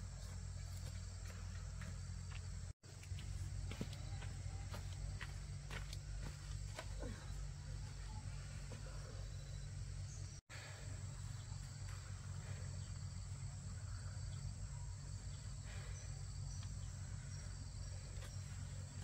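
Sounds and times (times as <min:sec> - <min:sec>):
continuous low rumble: 0:00.0 - 0:19.0
insects chirring: 0:00.1 - 0:19.0.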